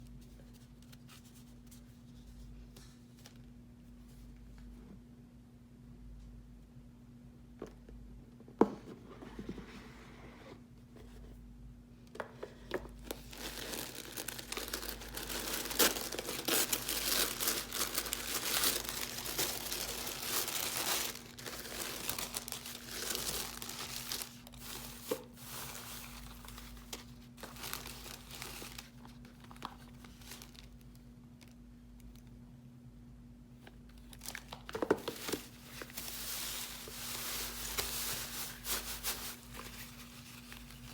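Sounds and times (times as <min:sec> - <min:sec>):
faint steady hum: 0:00.0 - 0:40.9
packaging crinkling and rustling: 0:12.8 - 0:32.1, 0:33.6 - 0:40.9.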